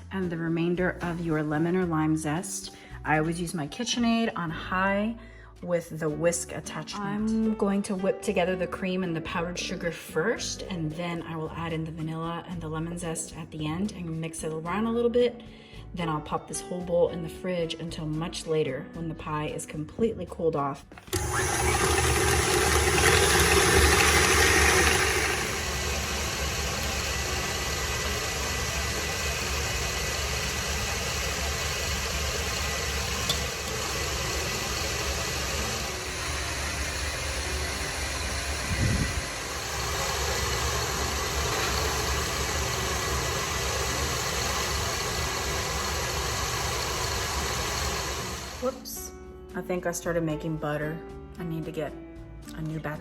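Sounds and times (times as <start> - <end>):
stand mixer whisking cream: 21.0 - 48.7.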